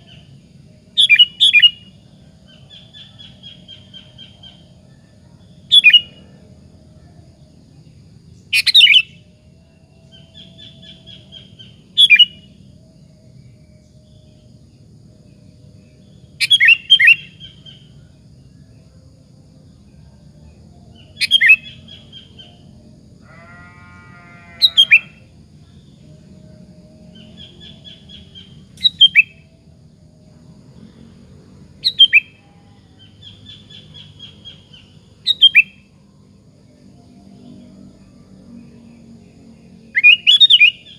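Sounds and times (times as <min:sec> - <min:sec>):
bird singing: 0:00.0 - 0:40.9
low buzzy bird call: 0:23.2 - 0:25.3
soft bird twittering: 0:31.8 - 0:32.4.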